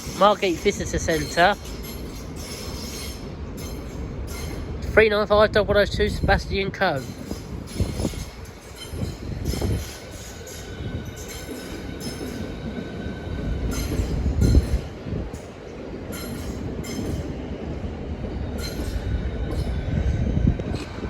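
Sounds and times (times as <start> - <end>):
train rolling rumble: 0.0 - 21.0.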